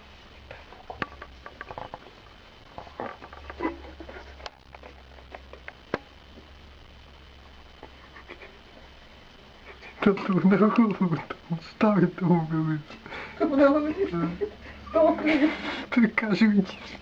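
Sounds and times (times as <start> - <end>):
faint low hum: 0.0 - 17.0
small pets pattering and scrabbling: 0.4 - 6.5.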